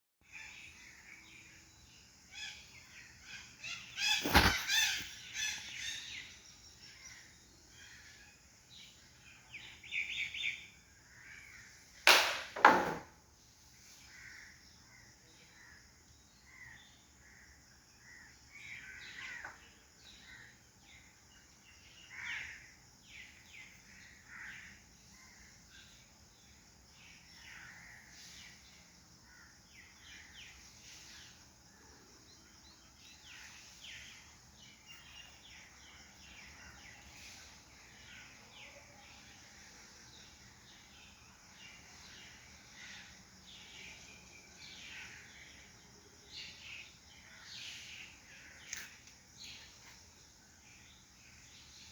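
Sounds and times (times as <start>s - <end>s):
birds calling: 2.3s - 13.0s
crow-like caws: 24.2s - 24.7s.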